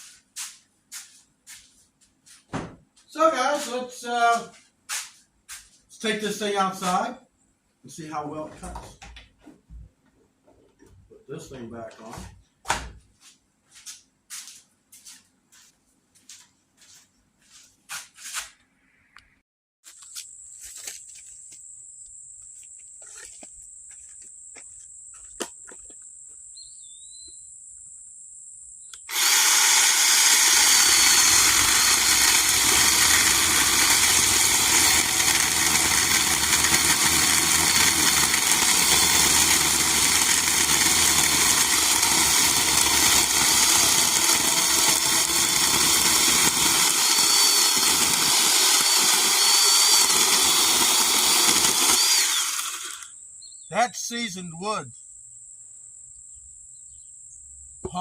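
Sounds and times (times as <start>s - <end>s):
chainsaw cutting log: 29.0s - 53.2s.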